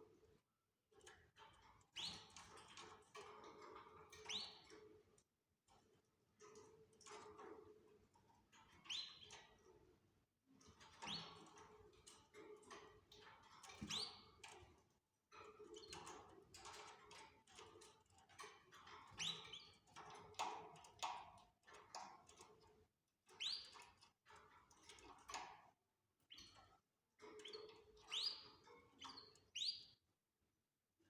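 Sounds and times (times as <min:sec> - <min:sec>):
canaries chirping: 0:04.2 - 0:04.7, 0:11.0 - 0:11.4, 0:19.2 - 0:19.8, 0:27.4 - 0:30.0.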